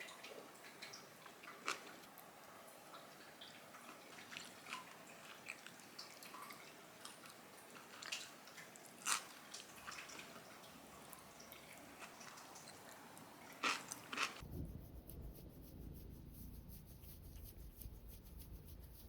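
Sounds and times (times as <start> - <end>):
wet clicks and squishes of food: 0.0 - 14.4.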